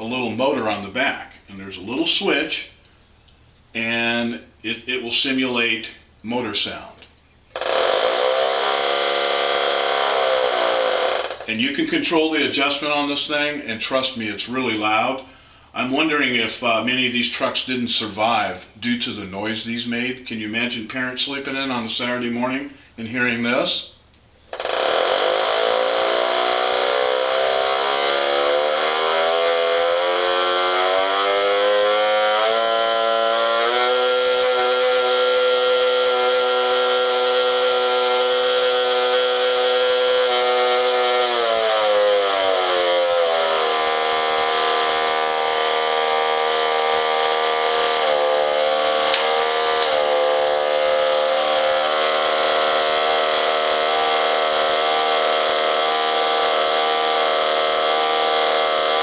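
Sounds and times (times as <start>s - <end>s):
toy motor engine-like drone: 7.6s - 11.5s, 24.5s - 59.0s.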